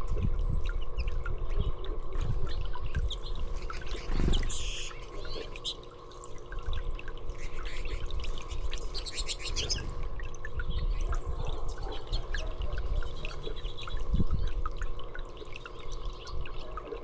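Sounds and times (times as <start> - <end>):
trickling water: 0.0 - 17.0
small birds chirping: 0.9 - 5.9, 7.4 - 10.0.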